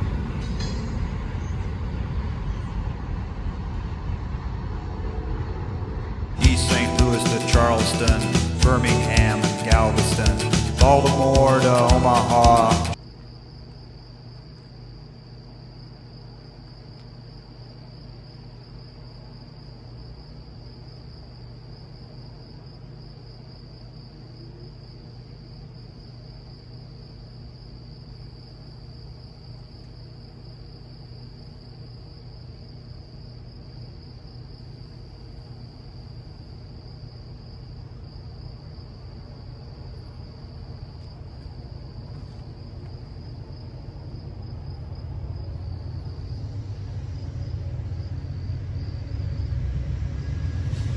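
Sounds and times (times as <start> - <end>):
insects chorus: 15.7 - 49.5
low steady rumble: 42.5 - 50.9.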